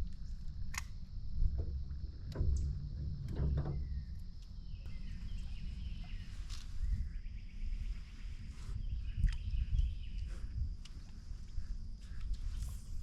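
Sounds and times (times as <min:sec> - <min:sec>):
steady low rumble: 0:00.0 - 0:13.0
faint chirps: 0:03.7 - 0:13.0.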